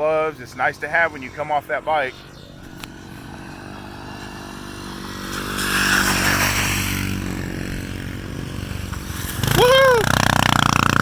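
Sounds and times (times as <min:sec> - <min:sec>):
motorbike engine running: 0:00.7 - 0:11.0.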